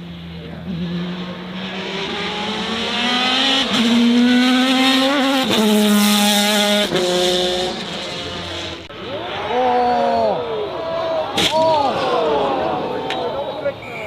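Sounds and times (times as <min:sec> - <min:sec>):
racing car engine accelerating: 0:00.6 - 0:09.4.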